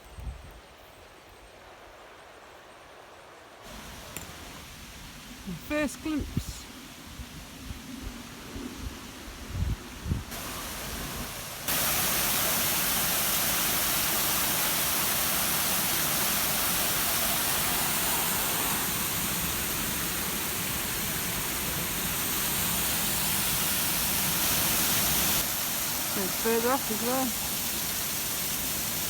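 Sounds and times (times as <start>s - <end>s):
waterfall rushing: 3.7s - 7.2s, 10.3s - 29.0s.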